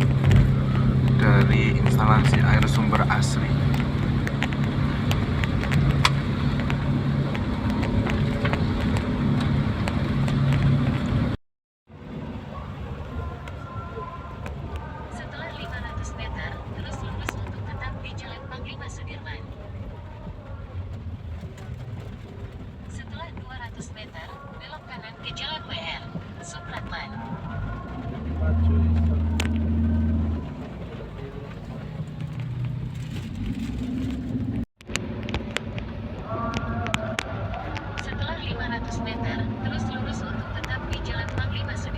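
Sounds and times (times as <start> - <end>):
engine hum: 0.0 - 41.9
road noise: 0.0 - 41.9.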